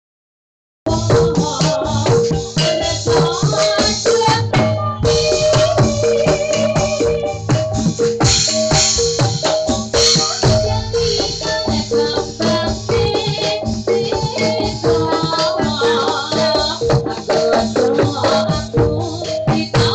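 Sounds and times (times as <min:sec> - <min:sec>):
drum strokes: 0:00.9 - 0:19.9
gamelan music over sound system: 0:00.9 - 0:19.9
rattling percussion: 0:00.9 - 0:19.9
low drone: 0:10.4 - 0:15.1.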